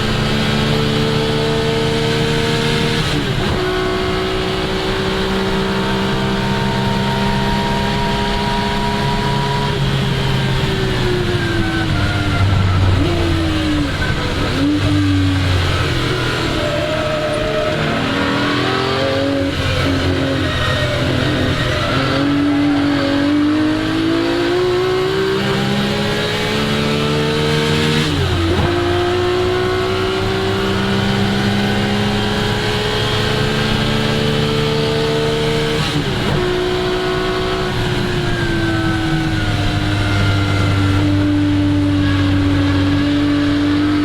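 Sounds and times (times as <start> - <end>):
car engine accelerating hard: 0.0 - 44.0
gear upshift: 10.3 - 26.6.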